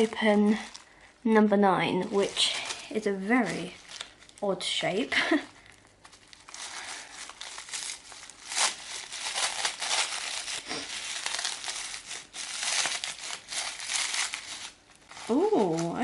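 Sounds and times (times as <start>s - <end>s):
wrapping paper crinkling and tearing: 0.0s - 16.0s.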